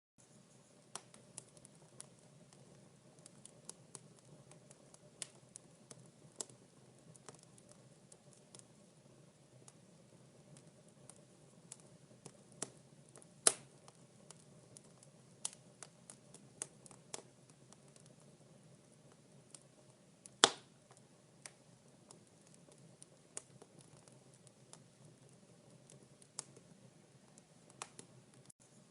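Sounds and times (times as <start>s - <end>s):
wood fire crackling: 0.2s - 28.9s
loud pop of fire: 13.4s - 13.7s, 20.4s - 20.7s.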